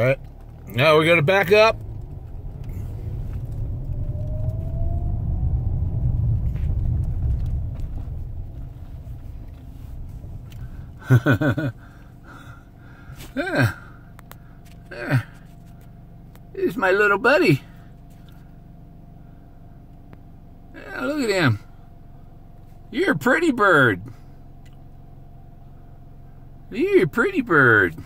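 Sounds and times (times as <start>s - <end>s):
car engine rumble: 0.0s - 28.0s
faint rising whine: 0.6s - 13.4s
man's short vocal sounds: 13.2s - 14.0s.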